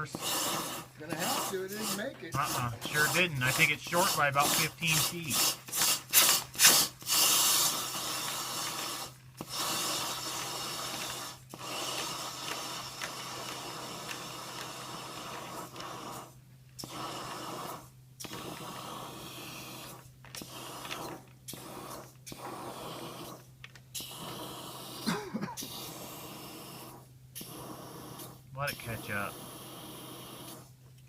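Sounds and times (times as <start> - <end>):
rushing and scraping in vent: 0.0 - 16.2
steady machine hum: 0.0 - 18.2.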